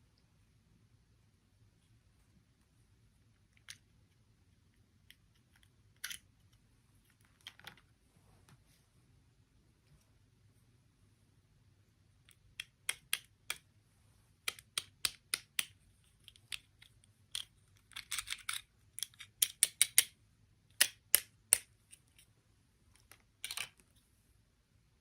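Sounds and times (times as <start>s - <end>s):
plastic toy pieces clicking: 5.4s - 6.2s, 12.3s - 13.6s, 14.5s - 20.1s, 23.4s - 23.8s
plastic pieces rattling: 17.3s - 19.6s.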